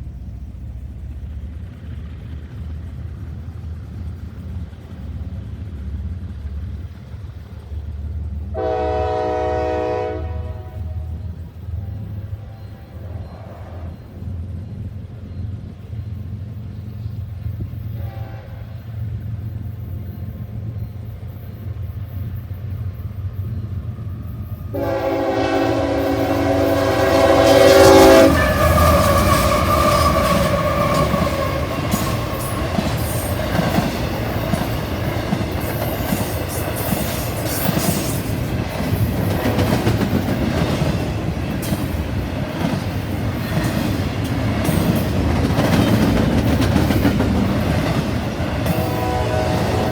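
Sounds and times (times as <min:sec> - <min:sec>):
train rumbling past: 0:00.0 - 0:49.9
train horn blast: 0:08.5 - 0:11.3, 0:18.0 - 0:18.8, 0:24.7 - 0:32.6, 0:39.3 - 0:40.2, 0:48.6 - 0:49.9
wheels clacking over rails: 0:25.7 - 0:49.9.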